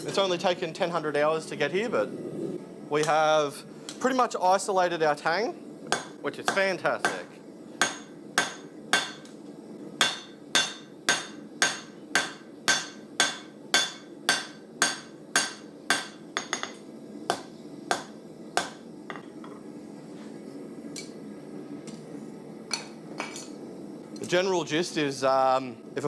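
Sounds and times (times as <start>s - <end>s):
steady low hum: 0.0s - 24.2s
hammer striking steel on anvil: 5.9s - 9.3s, 10.0s - 18.9s.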